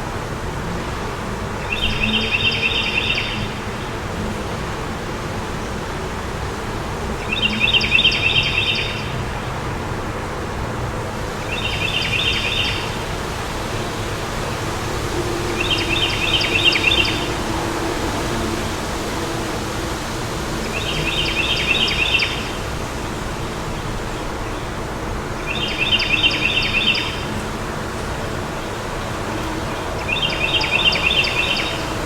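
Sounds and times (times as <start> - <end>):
wind noise: 9.1 - 25.4.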